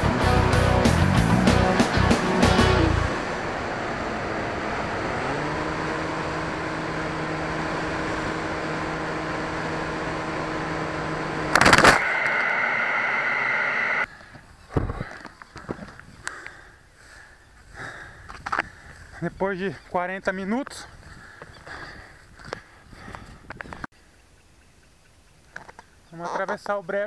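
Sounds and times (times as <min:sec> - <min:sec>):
electric motor and propeller humming: 0:02.4 - 0:14.1
loud short burst: 0:11.5 - 0:14.0.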